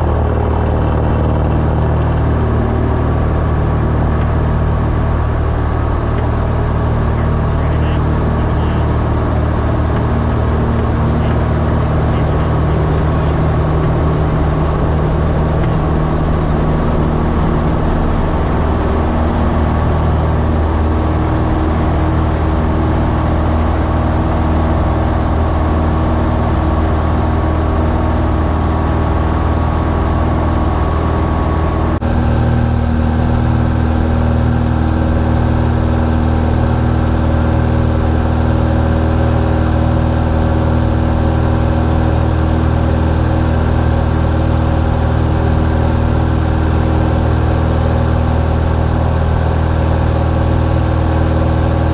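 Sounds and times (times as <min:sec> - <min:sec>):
propeller plane engine running: 0:00.0 - 0:51.9.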